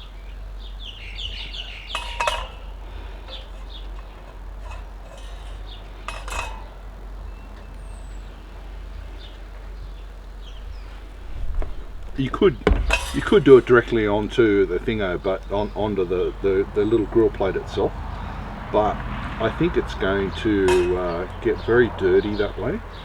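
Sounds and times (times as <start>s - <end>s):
small birds chirping: 0.0s - 23.0s
metal pan clattering: 1.1s - 8.3s, 10.5s - 23.0s.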